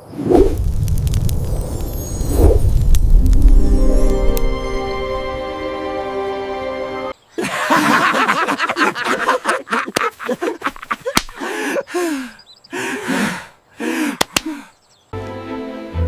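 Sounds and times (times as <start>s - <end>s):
sharp slaps or clicks: 11.1s - 11.4s, 14.2s - 14.6s.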